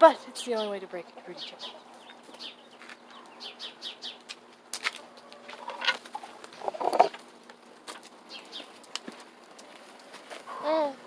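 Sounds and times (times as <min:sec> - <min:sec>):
chickens clucking: 0:01.1 - 0:03.5, 0:05.0 - 0:07.3.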